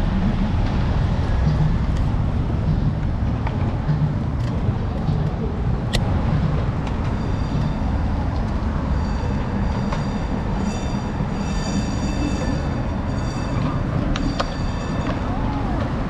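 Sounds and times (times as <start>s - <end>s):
street traffic rumble: 0.0s - 16.0s
streetcar rolling on rails: 0.0s - 16.0s
high-pitched wheel squeal: 7.0s - 16.0s.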